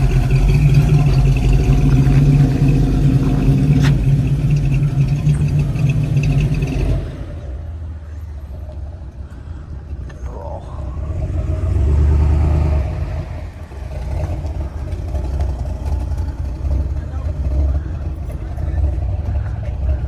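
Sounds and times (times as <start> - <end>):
engine low rumble: 0.0 - 20.0.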